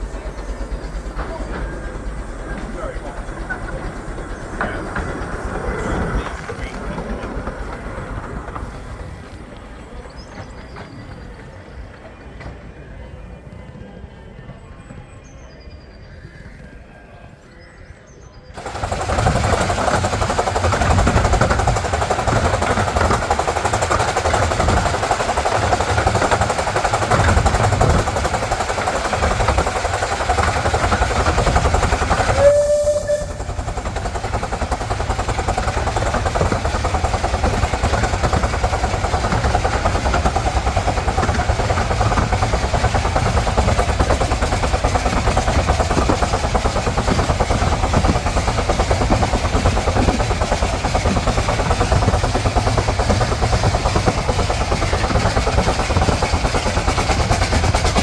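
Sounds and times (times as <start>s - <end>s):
miniature train rumbling on rails: 0.0s - 58.0s
train whistle toot: 32.3s - 33.7s.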